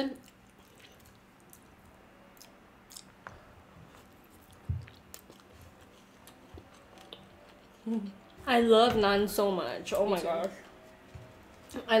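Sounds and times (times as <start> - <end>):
people chewing: 0.2 - 8.4.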